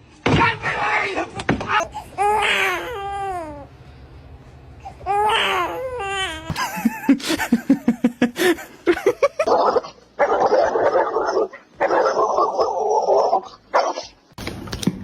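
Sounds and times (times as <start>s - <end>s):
laughter in rhythmic bursts: 6.5s - 9.5s.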